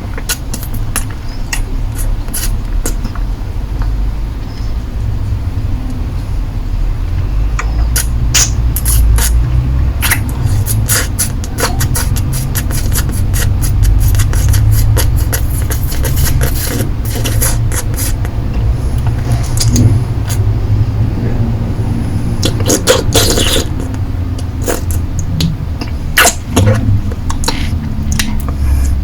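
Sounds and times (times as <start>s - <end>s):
licking and sucking lollipop: 0.1s - 3.2s, 7.6s - 9.4s, 10.0s - 18.3s, 19.0s - 20.5s, 22.4s - 28.6s
low rumble: 16.9s - 22.5s, 23.8s - 29.0s.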